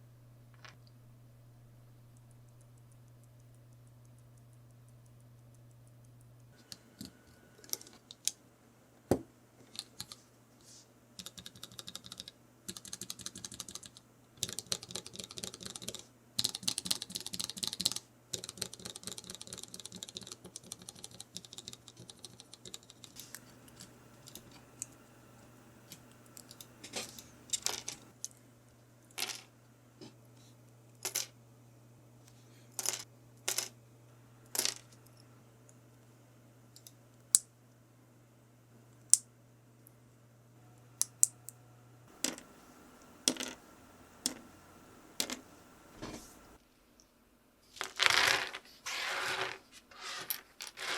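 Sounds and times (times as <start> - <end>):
keyboard typing clicks: 11.2 - 25.0.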